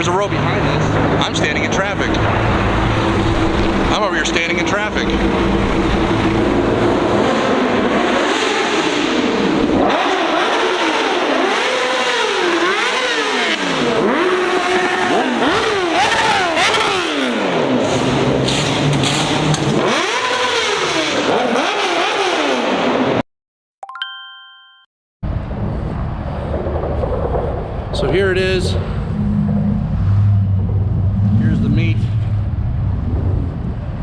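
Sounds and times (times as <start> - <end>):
car engine revving: 0.0 - 23.2, 26.4 - 34.0.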